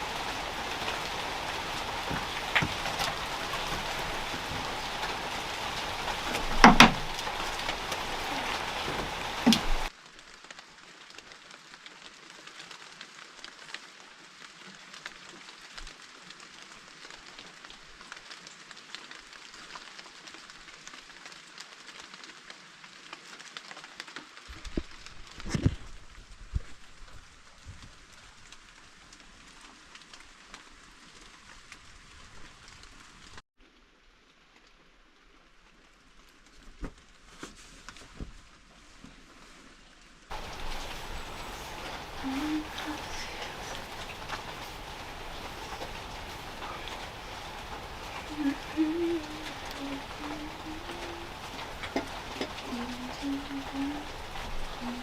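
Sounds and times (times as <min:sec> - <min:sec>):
faint hiss with light ticks: 0:00.0 - 0:33.4, 0:34.5 - 0:55.0
rain falling: 0:00.0 - 0:55.0
loud knocks: 0:06.6 - 0:07.1.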